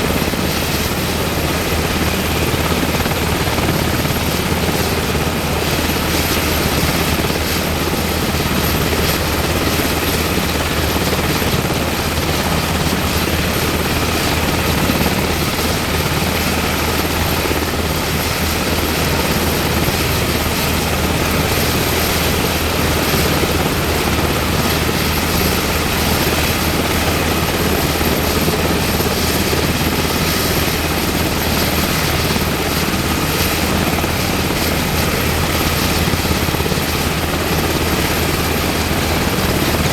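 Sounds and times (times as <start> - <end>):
helicopter engines and rotor roar: 0.0 - 39.9.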